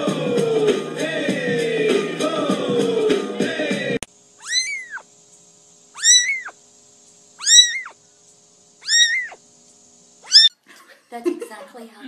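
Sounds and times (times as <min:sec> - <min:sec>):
kitten meowing: 0:04.4 - 0:05.1, 0:06.0 - 0:06.6, 0:07.4 - 0:08.0, 0:08.8 - 0:09.4, 0:10.2 - 0:10.6.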